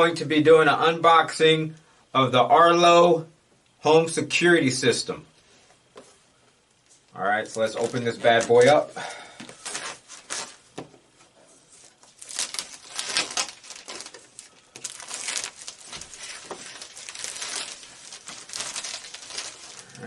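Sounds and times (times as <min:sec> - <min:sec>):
packaging crinkling and rustling: 0:07.0 - 0:10.9, 0:11.8 - 0:20.0
packaging tearing: 0:09.5 - 0:10.6, 0:12.0 - 0:20.0.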